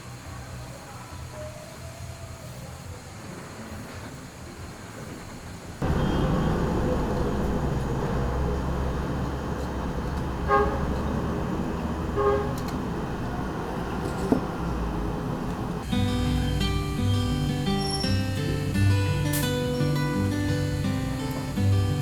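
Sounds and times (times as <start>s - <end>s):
street traffic rumbling: 5.7s - 22.0s
vehicle horn toots: 5.8s - 13.4s.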